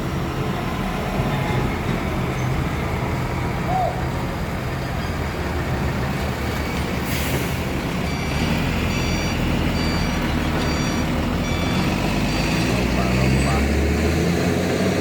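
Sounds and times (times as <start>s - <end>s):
truck engine running: 0.0s - 15.0s
air brake hiss: 7.0s - 7.7s
reversing alarm beeping: 8.0s - 12.8s.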